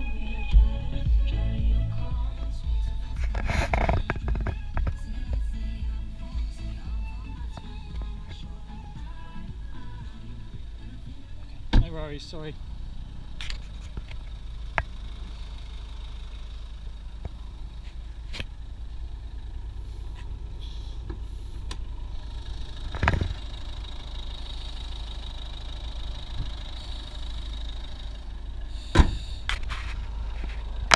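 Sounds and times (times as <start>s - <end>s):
diesel car engine idling: 0.0s - 30.9s
car bonnet shutting thump: 28.8s - 29.3s.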